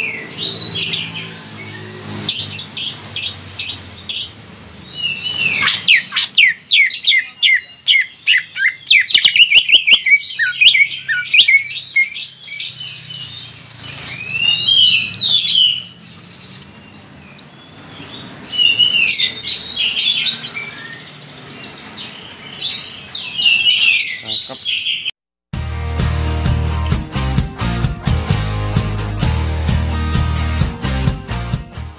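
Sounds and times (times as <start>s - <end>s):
bird singing: 0.0s - 25.1s.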